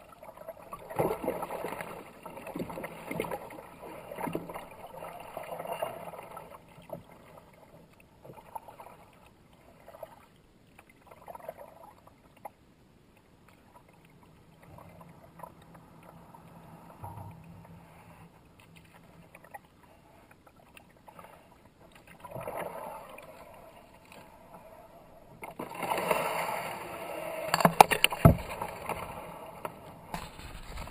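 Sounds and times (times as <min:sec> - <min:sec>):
paddle splashing in water: 0:25.4 - 0:29.2, 0:30.0 - 0:30.9.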